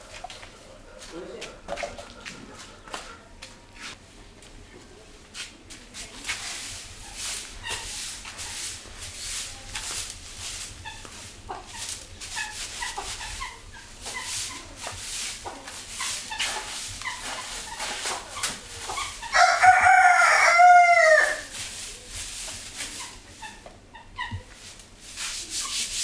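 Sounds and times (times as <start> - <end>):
broom sweeping: 0.0 - 4.1, 5.2 - 23.6, 24.4 - 26.0
rooster crowing: 19.3 - 21.5.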